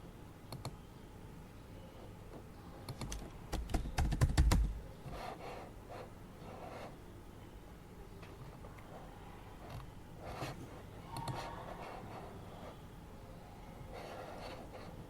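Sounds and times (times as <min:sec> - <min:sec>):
typing on computer keyboard: 0:02.9 - 0:04.8.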